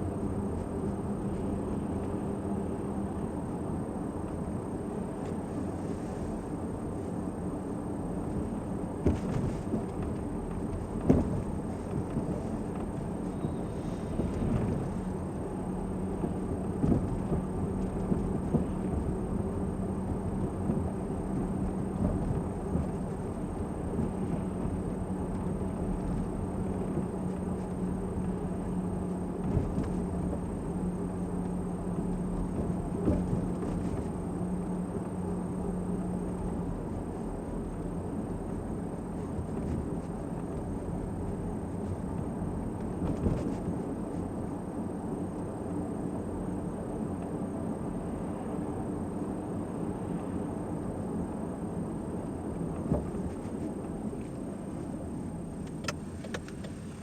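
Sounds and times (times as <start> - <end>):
car road and engine rumble: 0.0 - 57.0
knocks from bumps: 11.0 - 12.6.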